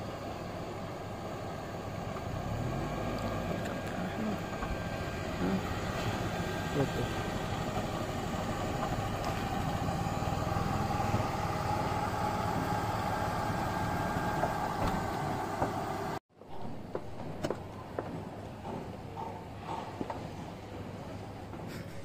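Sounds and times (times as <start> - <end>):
small car engine idling: 0.0 - 16.2.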